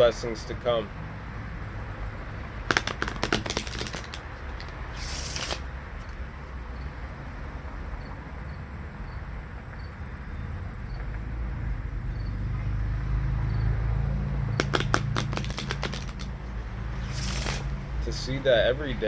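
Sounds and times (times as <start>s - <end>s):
cards being shuffled: 2.7s - 5.7s, 14.6s - 16.4s, 17.0s - 17.7s.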